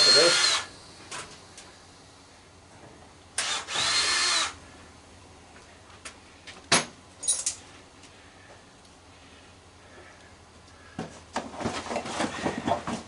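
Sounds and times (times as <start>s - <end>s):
power drill whining: 0.0s - 0.8s, 3.4s - 4.6s.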